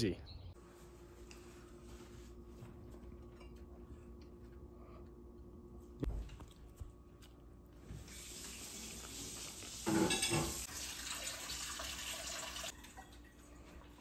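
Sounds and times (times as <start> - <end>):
faucet running into steel sink: 8.1 - 13.2.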